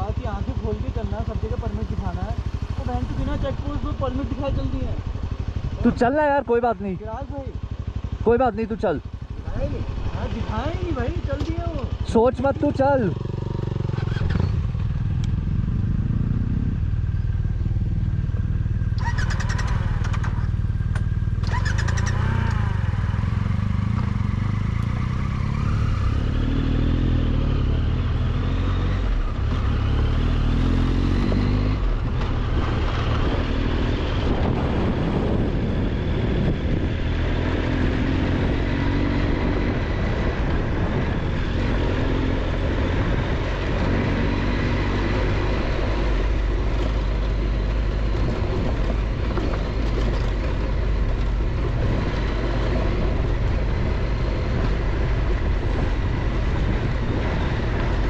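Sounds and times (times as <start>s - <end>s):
motorcycle engine running: 0.0s - 58.0s
road noise: 0.0s - 58.0s
wind noise: 30.3s - 58.0s.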